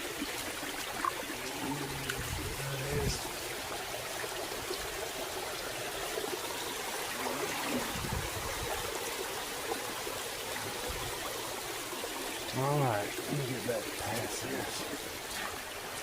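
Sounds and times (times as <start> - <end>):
water trickling over rocks: 0.0 - 16.0.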